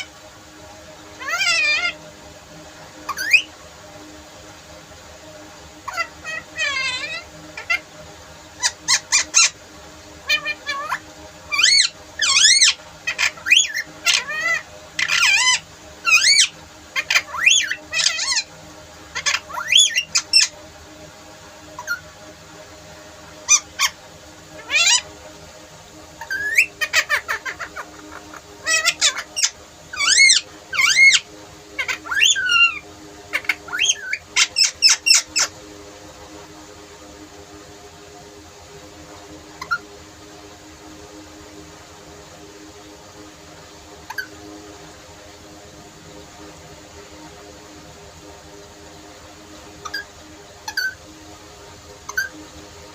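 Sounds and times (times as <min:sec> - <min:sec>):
parrot squawking and chirping: 0:01.2 - 0:02.0, 0:03.1 - 0:03.5, 0:05.8 - 0:07.9, 0:08.6 - 0:09.6, 0:10.2 - 0:18.5, 0:19.1 - 0:20.5, 0:21.8 - 0:22.0, 0:23.4 - 0:24.0, 0:24.6 - 0:25.1, 0:26.2 - 0:35.6, 0:39.6 - 0:39.8, 0:44.1 - 0:44.4, 0:49.8 - 0:51.0, 0:52.1 - 0:52.4.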